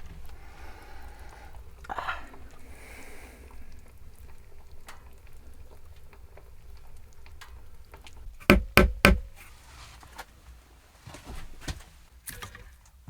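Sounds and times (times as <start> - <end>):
faint clicks: 0.0 - 8.3
loud knocks: 8.4 - 9.4.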